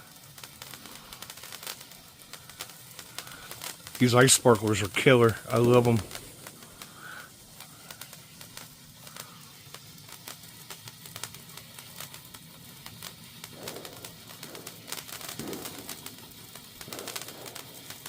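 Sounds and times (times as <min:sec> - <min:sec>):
sparkler fizzing and crackling: 0:00.0 - 0:18.0.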